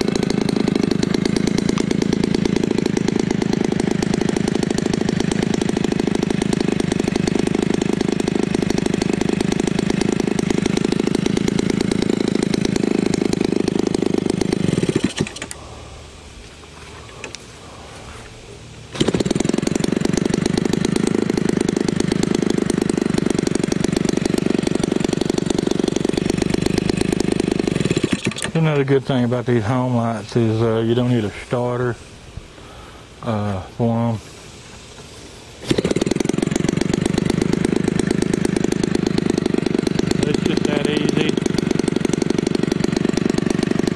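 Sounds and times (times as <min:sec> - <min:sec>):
model airplane engine running: 0:00.0 - 0:15.7, 0:18.9 - 0:28.9, 0:35.7 - 0:43.9.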